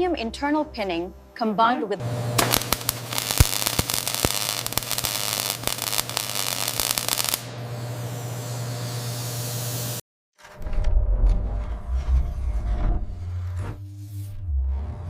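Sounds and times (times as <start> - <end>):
steady low hum: 0.0 - 10.0
welding arc crackling and hissing: 2.1 - 10.0.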